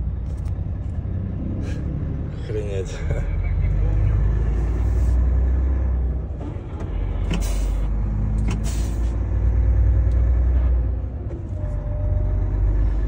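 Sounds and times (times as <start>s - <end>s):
diesel truck engine droning: 0.0s - 13.0s
air brake hisses: 7.4s - 7.9s, 8.6s - 9.1s.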